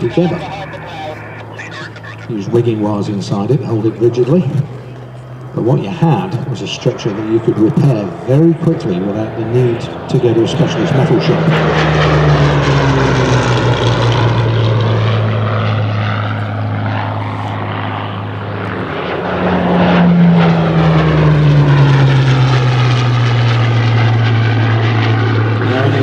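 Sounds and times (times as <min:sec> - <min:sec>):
propeller aircraft engines in flight: 0:00.0 - 0:26.0.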